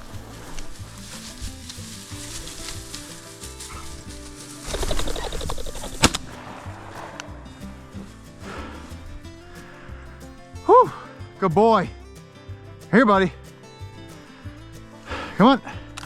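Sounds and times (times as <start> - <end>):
bird wingbeats: 0.0 - 10.1
pheasant cackling: 0.0 - 11.1
background music: 0.0 - 16.0.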